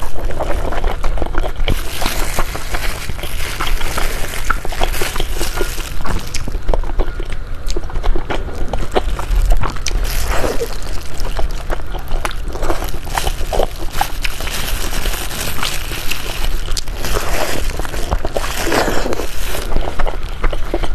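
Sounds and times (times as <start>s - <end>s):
plastic glove crinkling: 0.0s - 6.8s, 8.7s - 20.8s
wet chewing and slurping: 0.0s - 20.9s.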